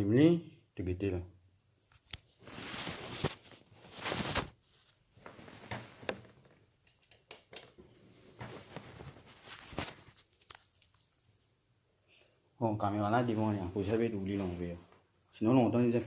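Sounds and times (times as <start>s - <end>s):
handling rustles: 2.0s - 6.5s, 8.1s - 11.2s.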